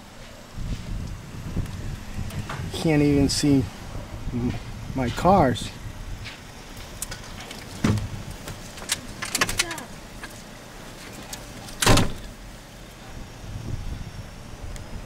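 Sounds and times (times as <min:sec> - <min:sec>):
knocks and thumps: 0:07.8 - 0:08.3.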